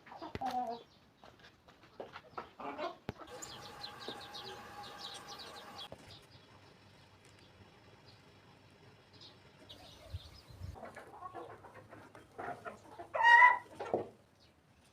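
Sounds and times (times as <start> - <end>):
chickens clucking: 0.0 - 5.9, 9.6 - 14.5
high chirping calls: 3.2 - 6.4.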